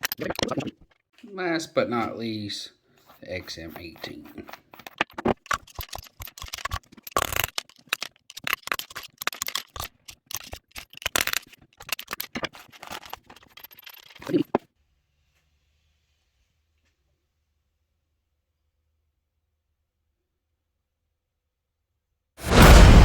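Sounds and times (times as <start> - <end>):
metal parts clicking and rattling: 0.0 - 0.9, 3.0 - 14.6.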